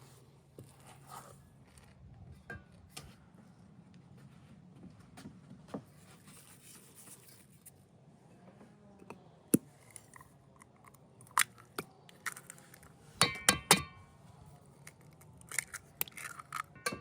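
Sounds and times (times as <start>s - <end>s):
hard objects knocking and clinking: 15.4s - 17.0s.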